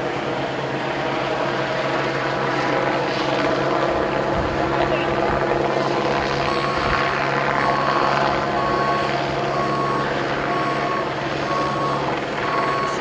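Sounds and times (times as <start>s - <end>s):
engine running: 0.0s - 13.0s
helicopter drone: 0.0s - 13.0s
vehicle reversing alarm beeping: 3.1s - 13.0s.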